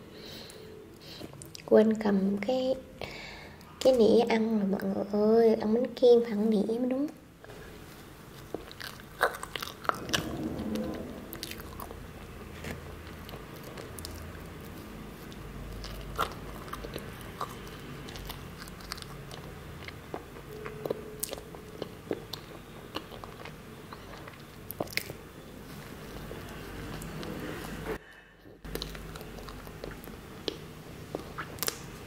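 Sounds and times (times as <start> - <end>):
wet mouth smacks while chewing cake: 28.6 - 32.0.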